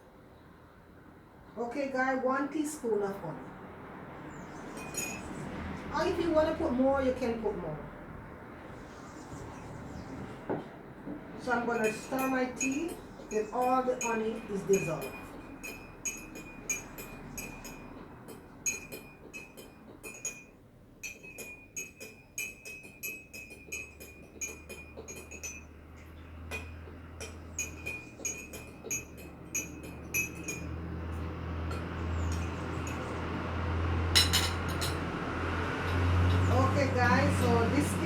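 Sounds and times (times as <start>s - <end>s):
teaspoon clinking against cup: 11.7s - 25.8s, 26.5s - 30.8s.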